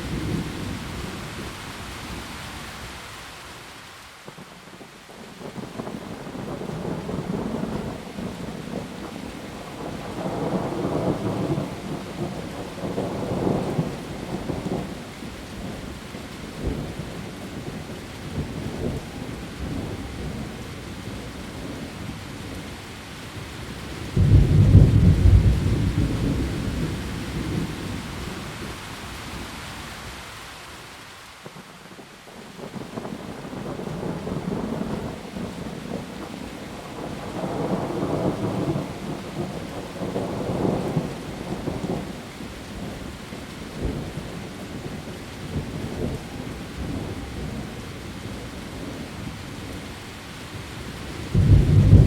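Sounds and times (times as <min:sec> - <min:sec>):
heavy rain: 0:00.0 - 0:52.0
thunder rumbling: 0:23.7 - 0:28.7, 0:51.2 - 0:52.0
loud thunderclap: 0:24.2 - 0:27.6, 0:51.3 - 0:52.0.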